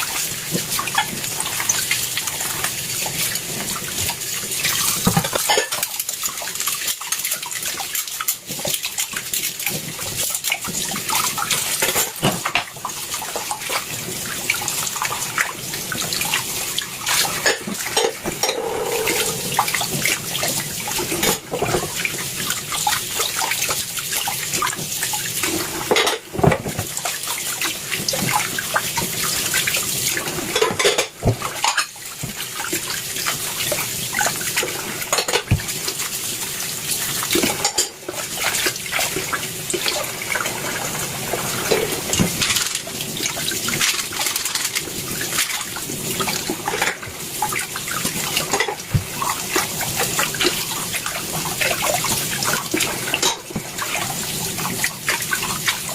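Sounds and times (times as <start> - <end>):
tap water running into sink: 0.0 - 55.9.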